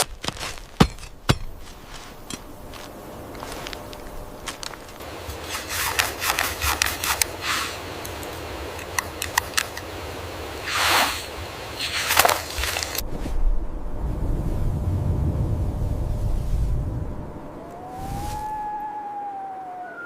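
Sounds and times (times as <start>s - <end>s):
low rumble: 13.0s - 18.8s.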